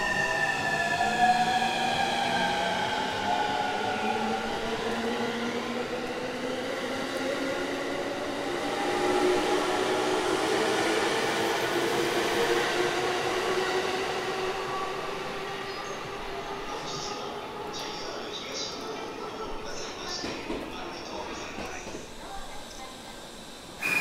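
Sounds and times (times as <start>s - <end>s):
electric train motor hum: 21.6s - 24.0s.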